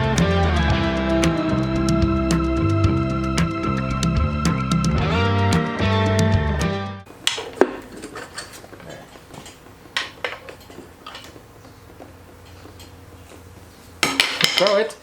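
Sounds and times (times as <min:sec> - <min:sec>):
background music: 0:00.0 - 0:07.1.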